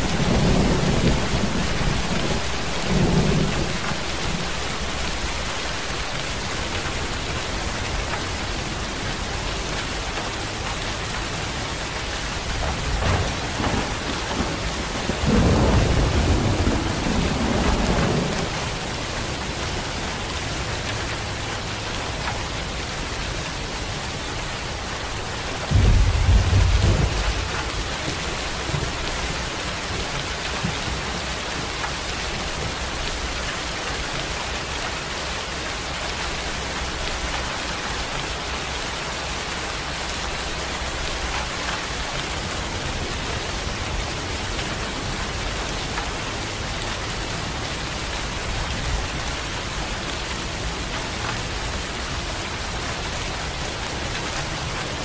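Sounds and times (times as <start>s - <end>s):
thunder rumbling: 0.0s - 10.0s, 11.0s - 20.0s, 24.9s - 31.7s
steady rain: 0.0s - 55.0s.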